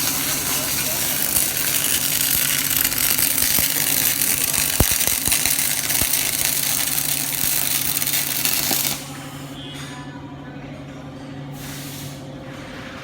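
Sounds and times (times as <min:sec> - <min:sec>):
spatter pops: 0:00.0 - 0:09.0
welding arc crackling: 0:00.0 - 0:09.1
welder machine hum: 0:00.0 - 0:09.6.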